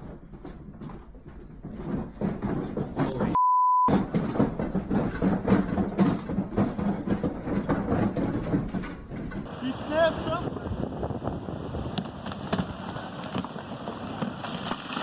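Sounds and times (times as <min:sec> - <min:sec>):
censor bleep: 0:03.4 - 0:04.0.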